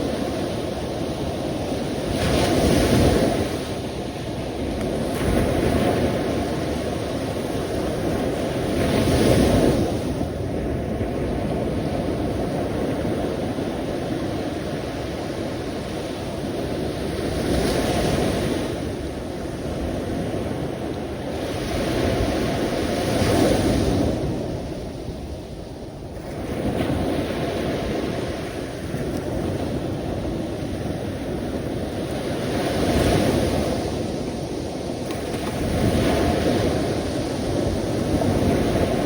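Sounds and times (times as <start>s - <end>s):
sea waves breaking: 0.0s - 39.0s.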